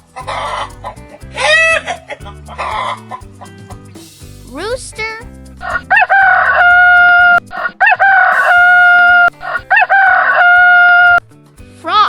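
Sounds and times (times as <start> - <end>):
rooster crowing: 5.6 - 11.2.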